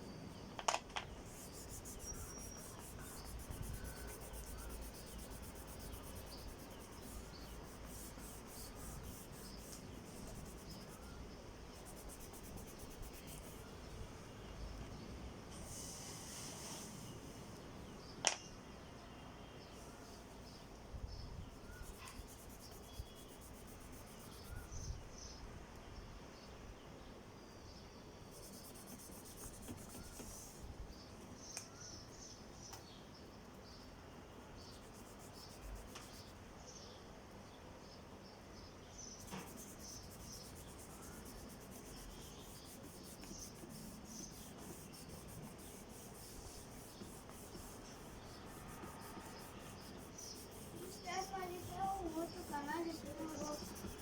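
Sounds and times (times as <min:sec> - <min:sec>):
oil pastel scratching on paper: 0:01.2 - 0:13.7, 0:21.5 - 0:24.9, 0:28.3 - 0:30.7, 0:34.6 - 0:36.4, 0:39.1 - 0:54.0.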